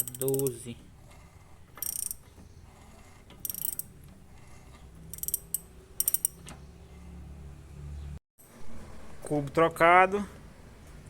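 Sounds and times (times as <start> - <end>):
ratchet wrench clicking: 0.0 - 0.6, 1.8 - 2.2, 3.4 - 3.9, 5.1 - 6.4.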